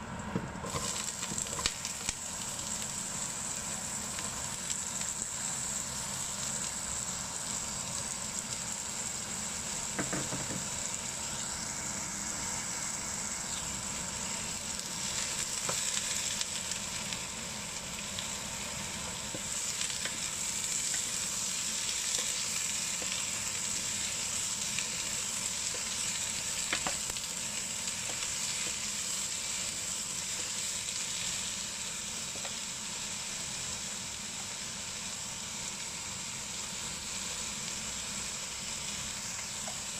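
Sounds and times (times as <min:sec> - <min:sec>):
vegetables sizzling in hot oil: 0:00.0 - 0:39.9.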